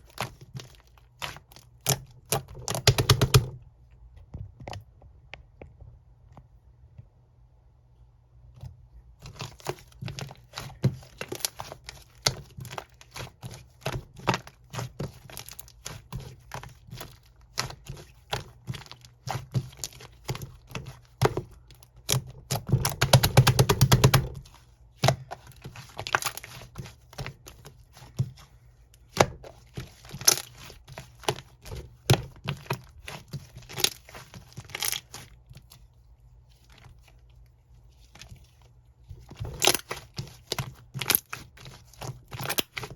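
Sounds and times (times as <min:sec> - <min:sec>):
slime clicking and crackling: 0:09.2 - 0:28.4, 0:29.0 - 0:35.8, 0:39.3 - 0:42.9.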